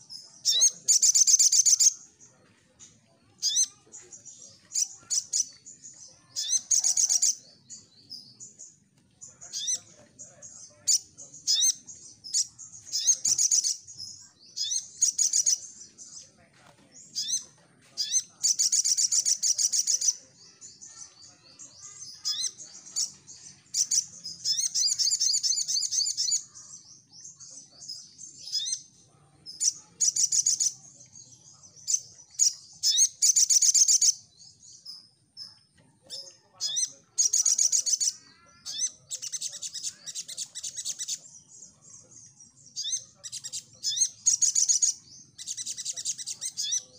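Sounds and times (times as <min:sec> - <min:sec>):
sharp bird chirps: 0:00.0 - 0:16.3, 0:17.0 - 0:46.9
bird twittering trills: 0:00.0 - 0:46.9.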